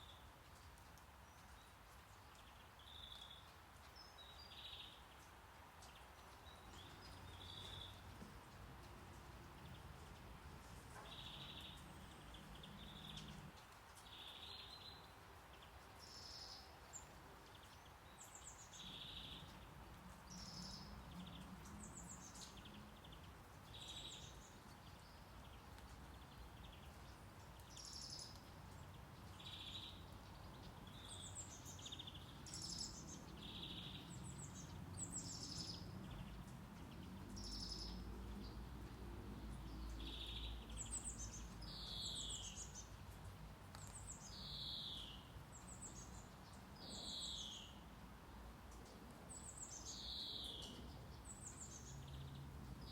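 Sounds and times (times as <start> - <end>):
faint steady hiss: 0.0 - 52.9
birds chirping and trilling: 9.2 - 15.0.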